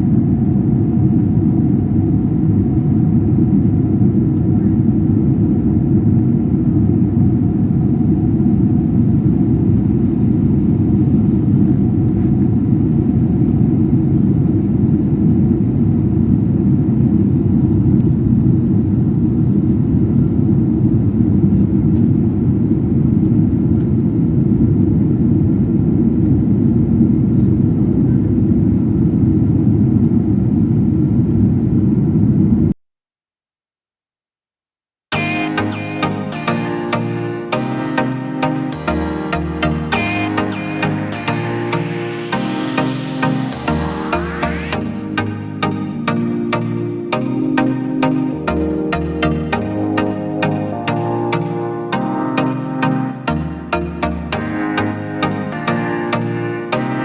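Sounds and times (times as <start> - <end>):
airliner engines rumbling: 0.0 - 32.6.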